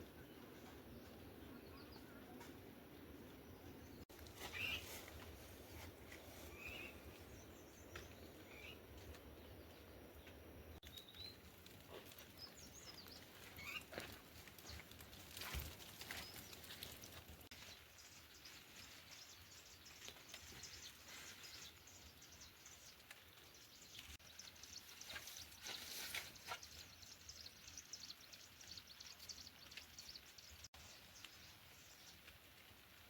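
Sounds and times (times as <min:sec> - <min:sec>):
small scattered ticks: 0:10.8 - 0:21.0.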